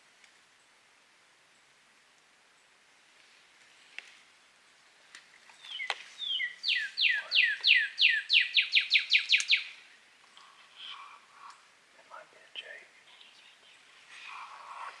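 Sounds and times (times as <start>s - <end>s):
bird calling downslurred notes: 5.6s - 9.8s.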